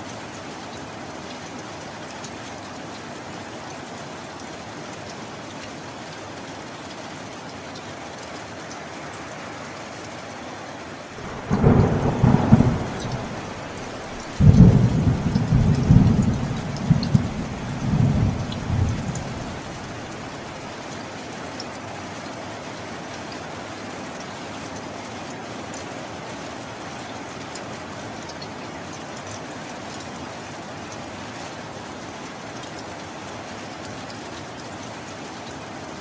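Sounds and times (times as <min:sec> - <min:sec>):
steady rain: 0:00.0 - 0:36.0
thunder crack: 0:11.2 - 0:20.1
low thunder rumble: 0:11.2 - 0:20.4.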